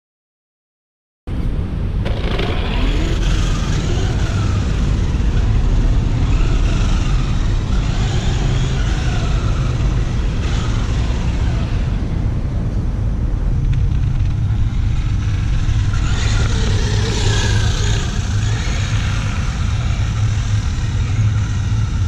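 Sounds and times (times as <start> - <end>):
steady low rumble: 1.3 - 22.0
electric motor whining: 2.0 - 12.2, 13.7 - 22.0.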